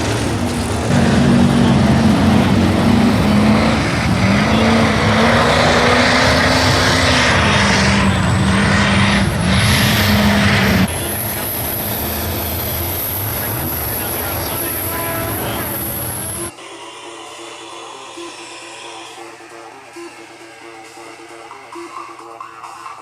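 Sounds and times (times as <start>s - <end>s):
diesel truck engine revving high: 0.0s - 16.5s.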